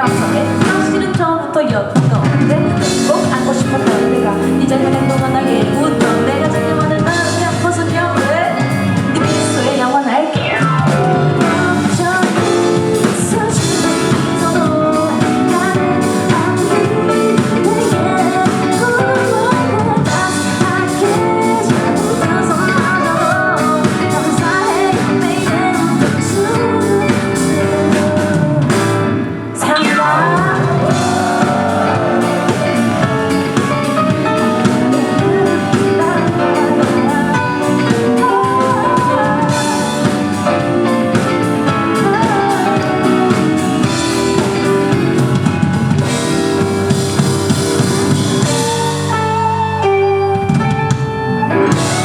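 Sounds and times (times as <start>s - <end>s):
person singing: 0.0s - 46.9s
drums: 0.0s - 52.0s
guitar: 0.0s - 52.0s.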